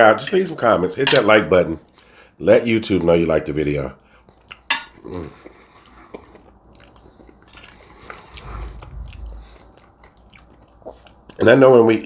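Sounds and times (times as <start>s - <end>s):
low murmur: 8.0s - 10.1s.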